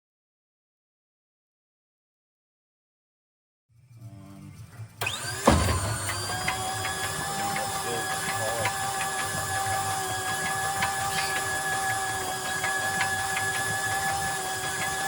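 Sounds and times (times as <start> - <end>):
machine whine: 3.7 - 15.0.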